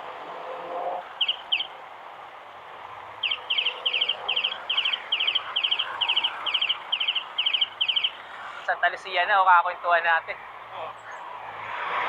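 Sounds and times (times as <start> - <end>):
bird chirping: 1.0 - 1.8, 3.2 - 8.7.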